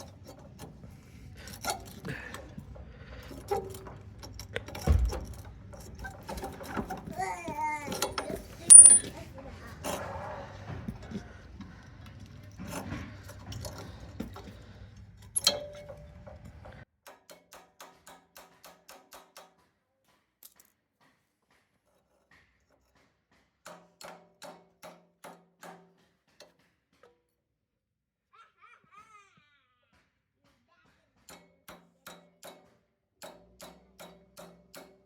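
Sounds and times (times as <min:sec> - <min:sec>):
ratchet wrench clicking: 0:07.9 - 0:09.1.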